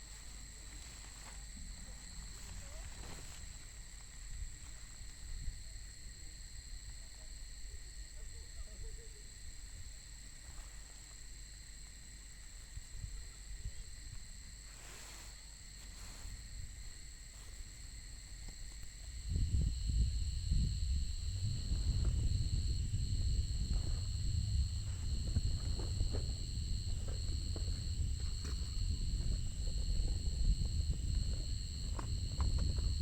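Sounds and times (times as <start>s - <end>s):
crickets trilling: 0.0s - 33.0s
wind buffeting microphone: 19.1s - 33.0s.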